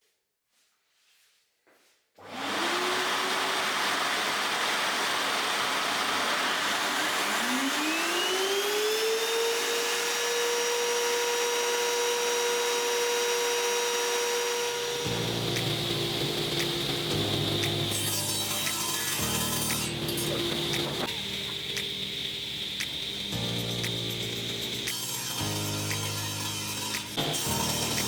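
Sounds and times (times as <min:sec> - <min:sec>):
router motor whine: 0:02.2 - 0:28.0
dust extractor motor rushing hiss: 0:02.3 - 0:28.0.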